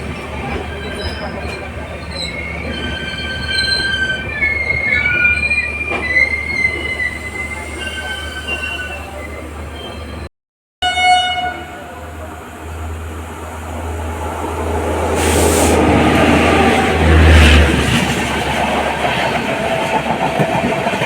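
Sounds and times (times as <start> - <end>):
train wheels squealing on rails: 0.0 - 10.3.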